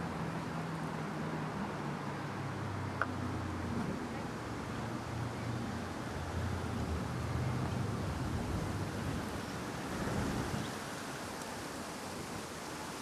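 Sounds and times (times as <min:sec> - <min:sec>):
steady rushing outdoor noise: 0:00.0 - 0:13.0.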